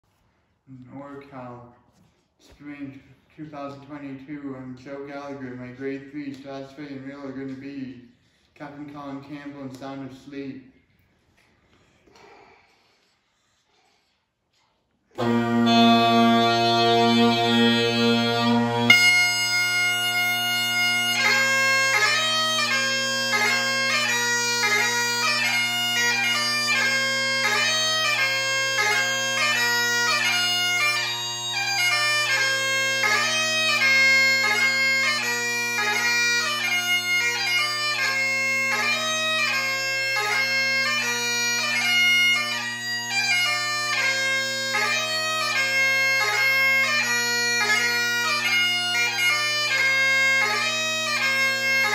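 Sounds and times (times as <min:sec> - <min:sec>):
bagpipe chanter melody: 0:15.1 - 0:51.9
bagpipe drones: 0:15.1 - 0:51.9.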